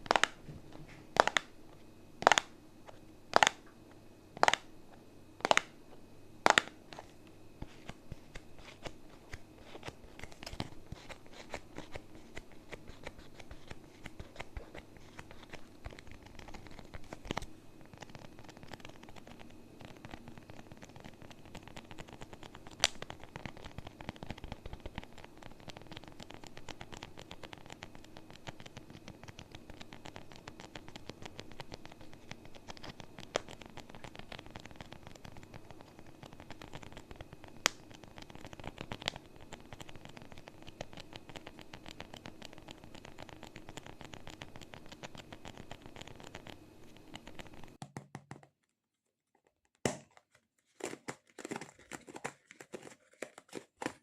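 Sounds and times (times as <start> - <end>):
taps and rustles: 49.7 - 54.0.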